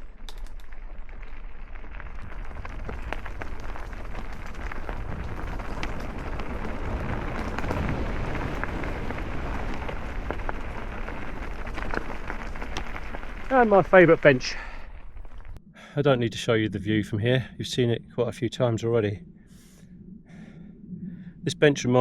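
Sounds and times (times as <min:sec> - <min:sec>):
bike tyres crunching on path: 0:00.0 - 0:15.6.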